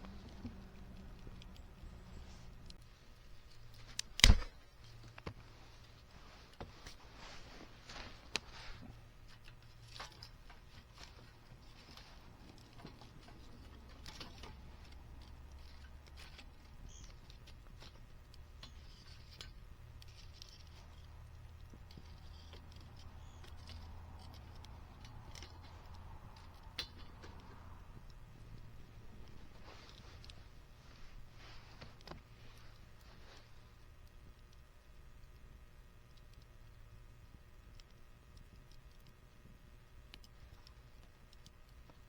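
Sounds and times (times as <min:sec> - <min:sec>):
snaps and pops of fire: 0:00.0 - 0:42.0
wood fire crackling: 0:00.0 - 0:42.0.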